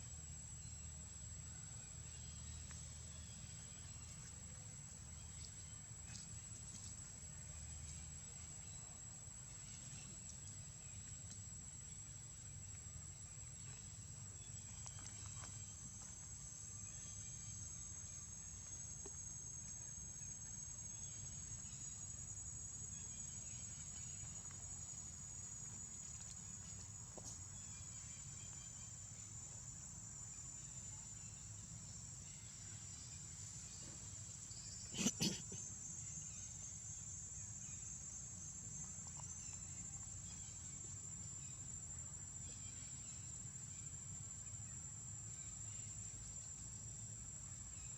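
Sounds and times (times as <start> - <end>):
insects trilling: 11.6 - 47.9.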